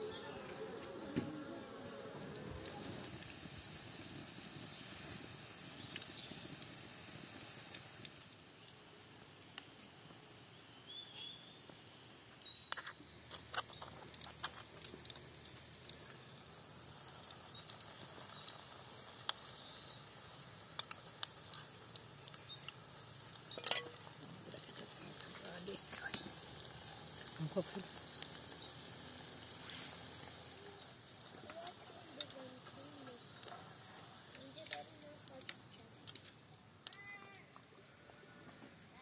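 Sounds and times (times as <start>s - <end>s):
batter frying in oil: 0.0s - 37.8s
metal spoon clinking and scraping: 23.5s - 24.1s.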